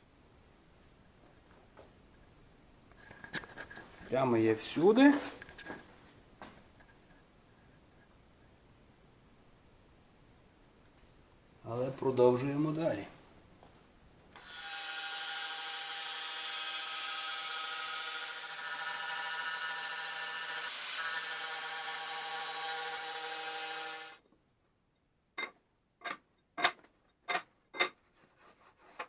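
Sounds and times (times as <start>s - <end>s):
power tool running: 14.4s - 24.2s.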